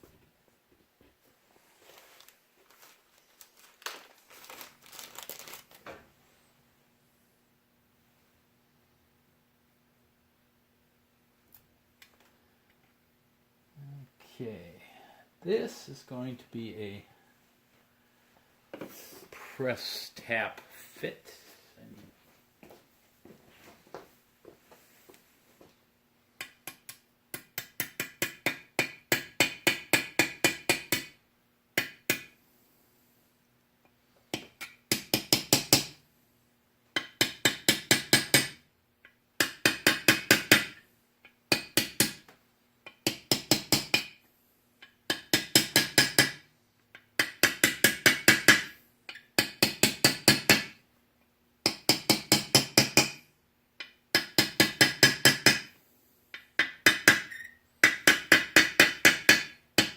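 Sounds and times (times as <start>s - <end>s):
hammer tapping metal bearing: 53.8s - 55.7s, 56.4s - 59.9s.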